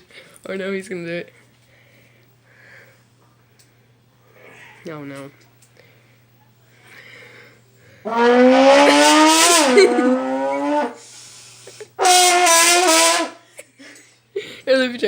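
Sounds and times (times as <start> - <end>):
trombone blasts: 8.0 - 11.0, 12.0 - 13.4.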